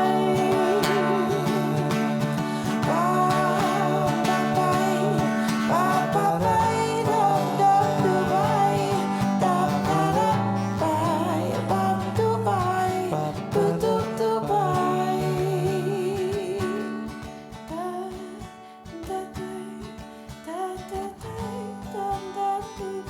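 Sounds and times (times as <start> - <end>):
wordless sustained singing: 0.0 - 17.0
acoustic guitar playing: 0.0 - 23.0.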